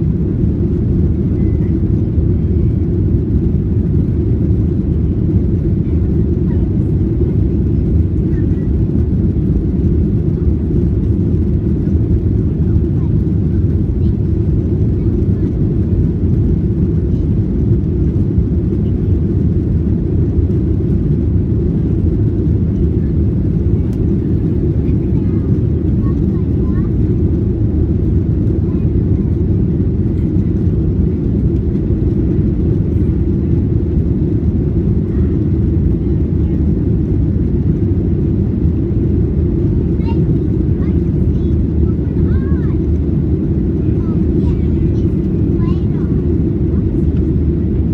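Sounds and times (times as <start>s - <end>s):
airliner cabin rumble: 0.0s - 47.9s.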